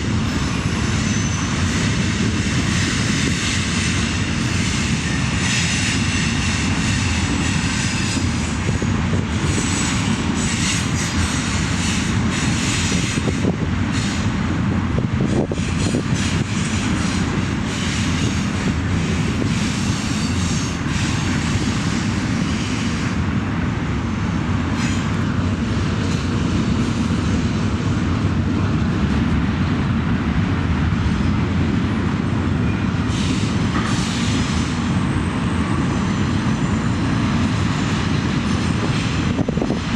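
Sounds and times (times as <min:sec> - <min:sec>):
train knocks: 0:00.0 - 0:23.4, 0:24.4 - 0:39.9
locomotive engine drone: 0:00.0 - 0:39.9
steel wheels rumbling on rails: 0:00.0 - 0:39.9
high wheel squeal: 0:00.2 - 0:14.3, 0:15.3 - 0:23.2.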